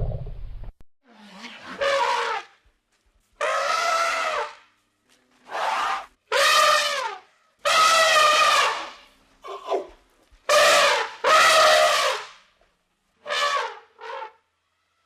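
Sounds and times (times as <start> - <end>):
elephant trumpeting: 3.4 - 4.6, 5.5 - 9.9.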